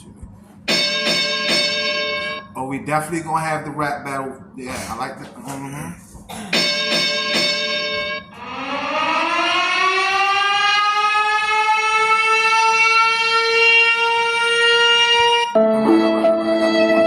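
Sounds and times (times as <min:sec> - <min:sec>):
held electronic note: 0:00.6 - 0:02.8, 0:06.5 - 0:10.0, 0:15.2 - 0:17.0
siren-like rising tone: 0:00.7 - 0:02.5, 0:06.6 - 0:17.0.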